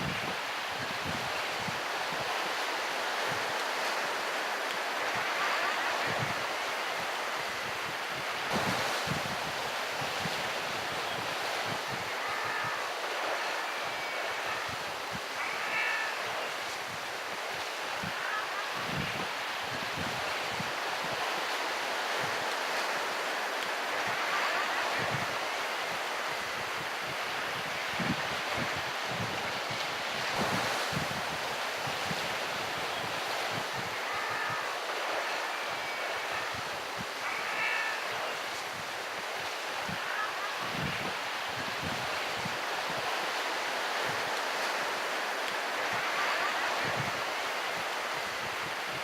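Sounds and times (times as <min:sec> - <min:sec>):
wind rumble on microphone: 0:00.0 - 0:04.1, 0:06.0 - 0:13.3, 0:16.8 - 0:21.3, 0:24.9 - 0:34.6, 0:36.4 - 0:43.2, 0:46.8 - 0:49.0
sea surf washing: 0:00.0 - 0:49.0
wind thumping on microphone: 0:08.5 - 0:10.5, 0:27.6 - 0:32.8.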